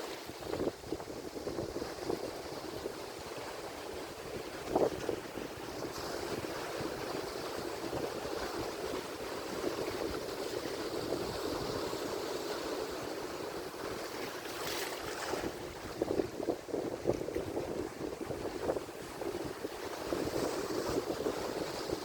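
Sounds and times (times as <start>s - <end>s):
ocean surf washing: 0.0s - 22.0s.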